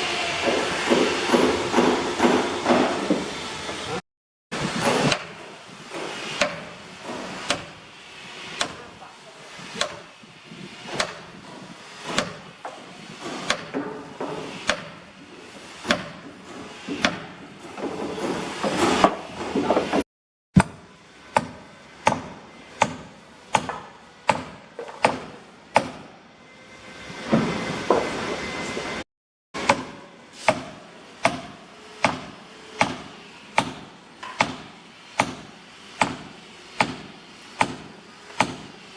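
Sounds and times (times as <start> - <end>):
hand tool striking wood: 4.8 - 7.8, 8.6 - 8.9, 9.8 - 10.1, 10.9 - 11.4, 12.0 - 15.0, 15.8 - 17.4, 20.6 - 26.1, 29.6 - 38.7.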